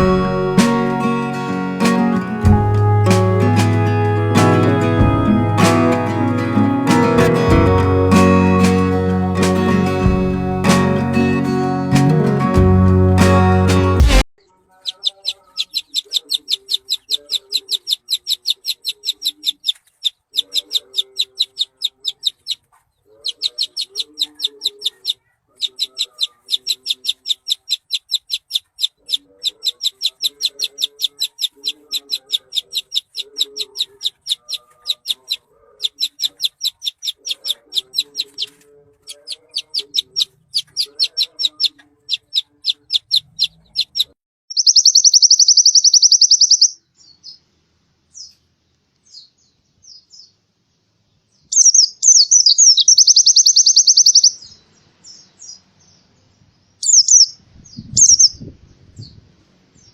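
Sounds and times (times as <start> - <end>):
bird singing rapid high notes: 0.0 - 14.2, 39.2 - 46.8, 51.6 - 54.5, 56.8 - 58.4.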